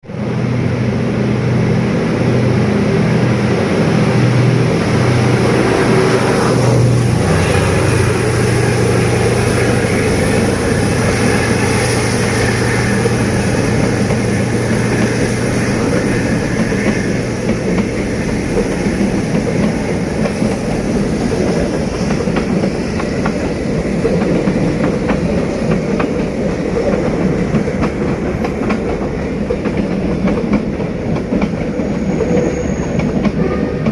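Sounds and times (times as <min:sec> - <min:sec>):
locomotive engine drumming: 0:02.3 - 0:20.5.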